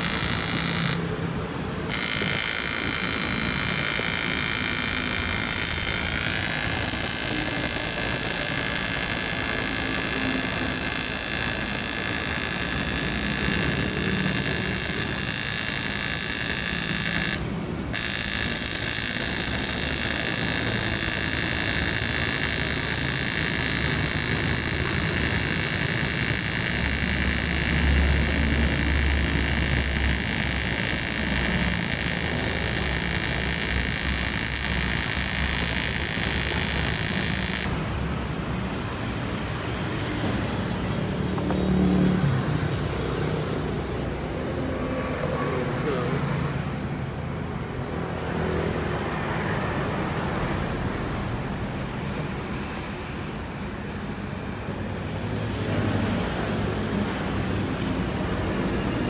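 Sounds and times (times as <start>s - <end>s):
faint high whine: 0.0s - 37.9s
welding arc buzzing hiss: 0.0s - 44.4s.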